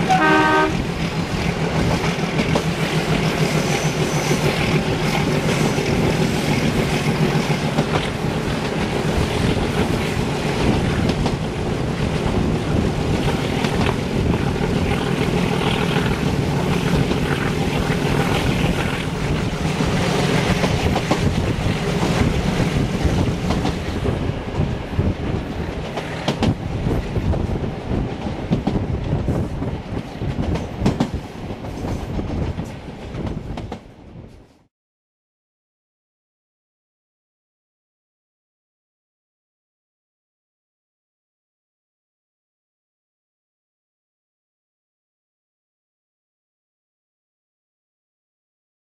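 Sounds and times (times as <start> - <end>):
passing express train: 0.0 - 34.7
train wheels rumbling on rail: 0.0 - 34.7.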